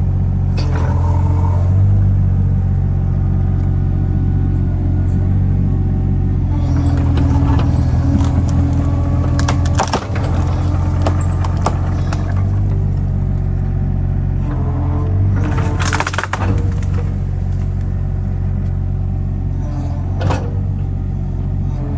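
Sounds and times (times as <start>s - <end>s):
small diesel engine running: 0.0s - 21.9s
wood snapping and splintering: 6.8s - 13.5s, 15.2s - 18.0s.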